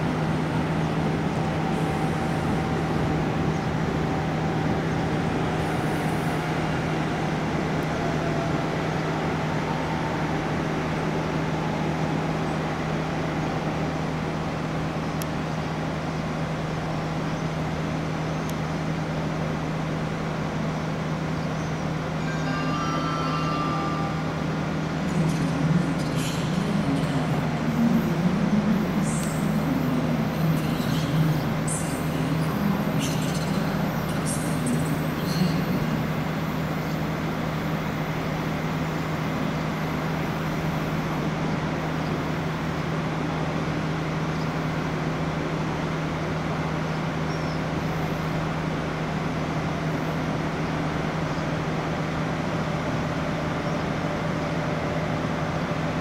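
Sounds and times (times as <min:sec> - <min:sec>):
electric train hum: 0:00.0 - 0:56.0.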